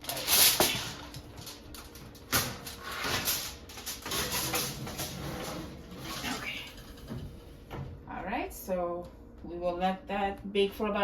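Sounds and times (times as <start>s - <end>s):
rustling and scraping: 0.0s - 7.8s.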